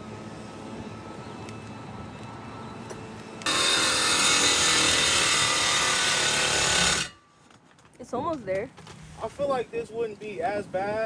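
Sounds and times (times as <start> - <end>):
saw cutting metal pipe: 3.4 - 7.2.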